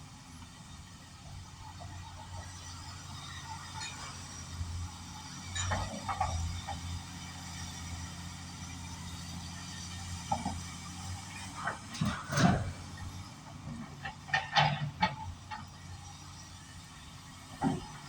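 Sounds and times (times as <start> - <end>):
excavator diesel engine running: 0.0 - 18.0
metal clanks and knocks: 13.7 - 15.9.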